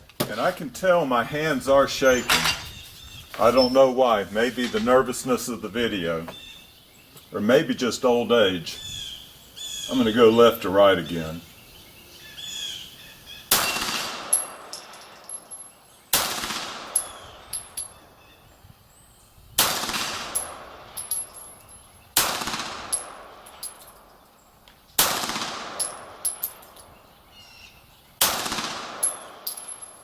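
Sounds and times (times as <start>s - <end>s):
pistol shots with echo: 13.5s - 14.7s, 16.1s - 17.2s, 19.6s - 21.2s, 22.2s - 23.5s, 25.0s - 26.6s, 28.2s - 30.0s.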